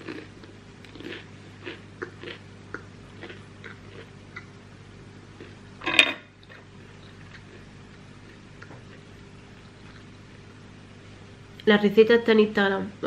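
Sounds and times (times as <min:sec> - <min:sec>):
person chewing: 0:00.0 - 0:04.6, 0:05.3 - 0:10.5.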